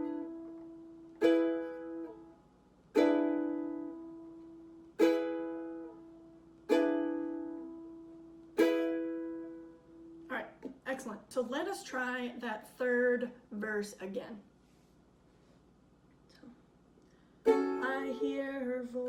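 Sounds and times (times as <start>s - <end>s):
ukulele chords strummed: 0.0s - 10.3s, 17.4s - 19.0s.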